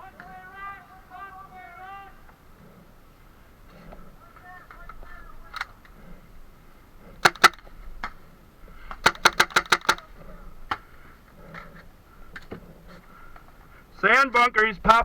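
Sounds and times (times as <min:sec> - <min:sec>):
faint pops: 0:07.1 - 0:13.7
paintball marker shots: 0:07.2 - 0:10.1.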